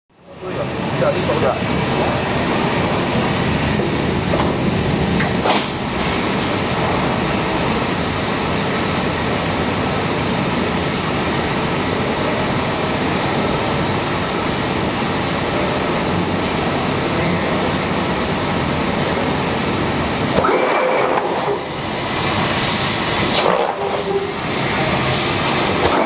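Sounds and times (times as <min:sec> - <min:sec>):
laser cutting machine rushing: 0:02.9 - 0:26.0.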